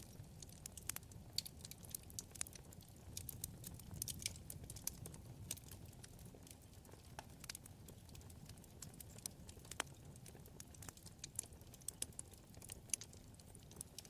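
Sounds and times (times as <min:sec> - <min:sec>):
low rumble of flame: 0:00.0 - 0:14.0
wood fire crackling: 0:00.0 - 0:14.0.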